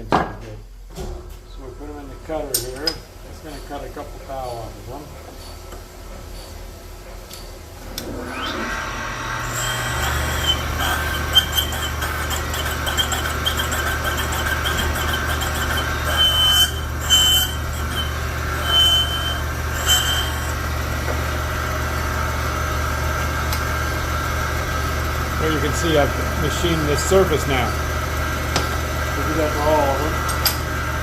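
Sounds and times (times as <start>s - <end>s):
cutting machine humming: 7.9s - 31.0s
short high squeals: 9.4s - 20.6s.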